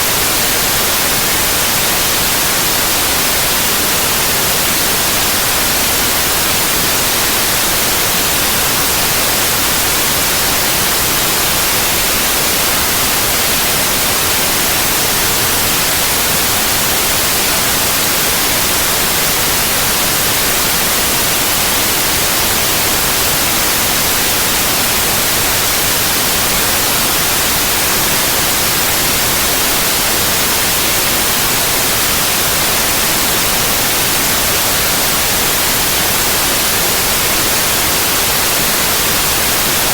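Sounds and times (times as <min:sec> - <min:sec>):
electronic white noise hiss: 0:00.0 - 0:39.9.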